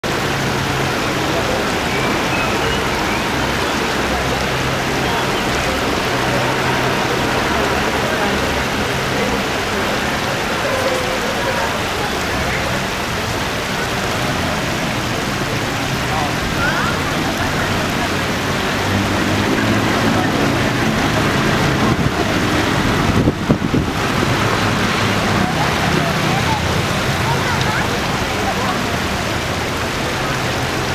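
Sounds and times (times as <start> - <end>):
water rushing: 0.0 - 30.9
wind on microphone: 20.9 - 25.4.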